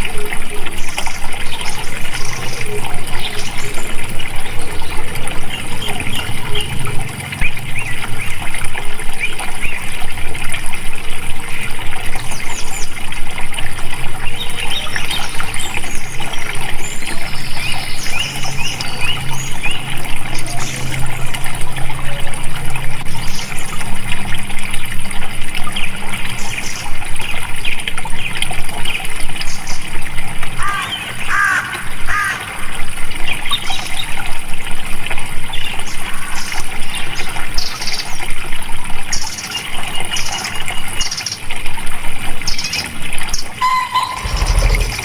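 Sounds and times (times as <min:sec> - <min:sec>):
water flowing and trickling: 0:00.0 - 0:45.0
bird chirps: 0:43.6 - 0:45.0.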